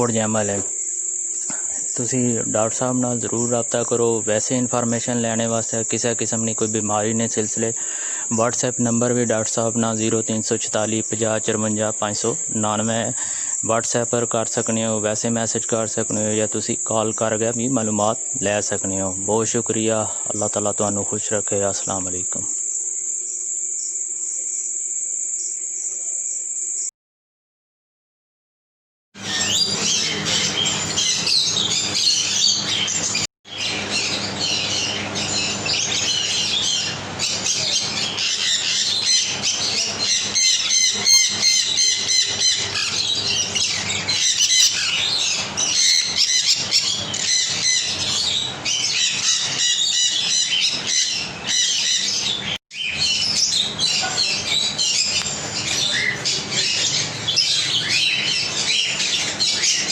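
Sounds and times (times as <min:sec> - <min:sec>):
parrots squawking and chirping: 0:29.2 - 0:59.9.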